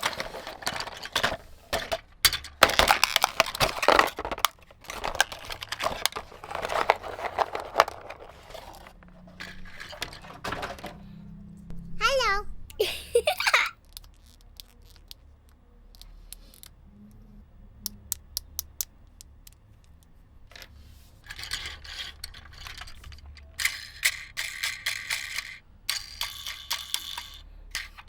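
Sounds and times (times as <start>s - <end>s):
plastic packaging rattling and crinkling: 0.0s - 11.0s, 21.2s - 28.0s.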